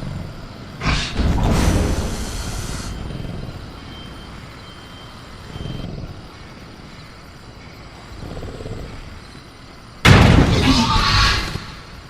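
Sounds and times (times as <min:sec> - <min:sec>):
thin steady high tone: 0:02.5 - 0:07.9.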